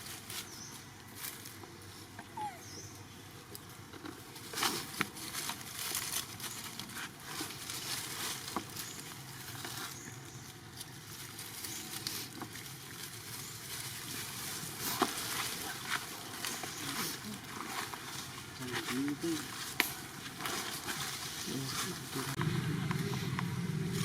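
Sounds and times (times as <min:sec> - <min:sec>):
faint squeak: 0:02.3 - 0:02.9
rustling and pattering: 0:03.4 - 0:24.0.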